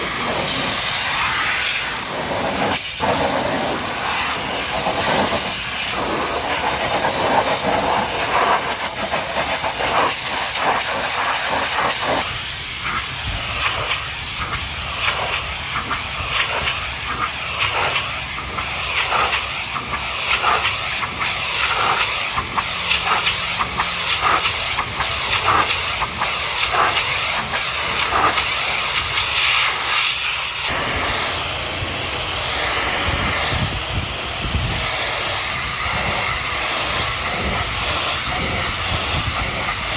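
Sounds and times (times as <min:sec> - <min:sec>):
pressure washer spraying: 0:00.0 - 0:39.9.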